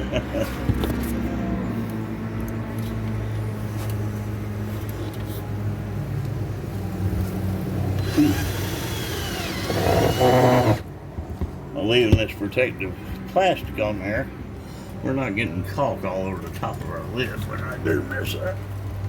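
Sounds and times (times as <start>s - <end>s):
low mechanical hum: 0.0s - 12.3s.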